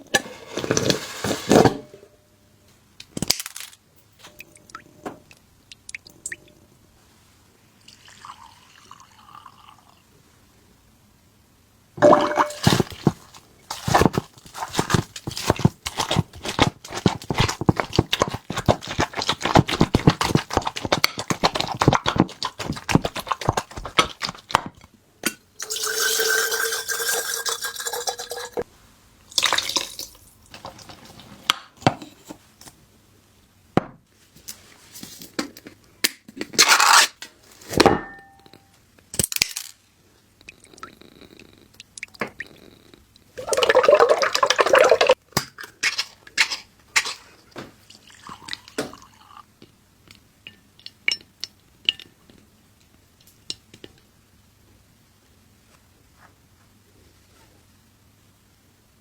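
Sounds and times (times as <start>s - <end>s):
utensils clicking and scraping containers: 0.1s - 2.0s, 12.2s - 24.8s.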